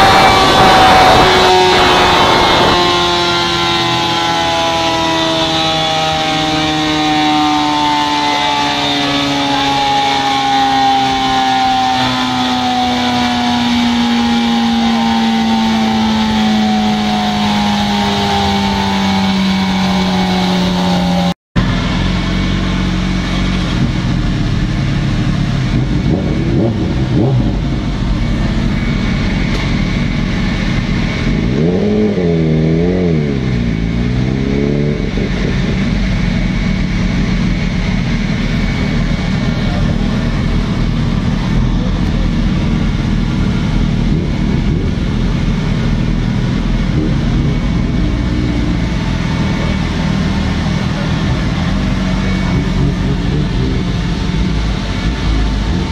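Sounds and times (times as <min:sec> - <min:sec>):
motorcycle engine on dynamometer: 0:00.0 - 0:55.9.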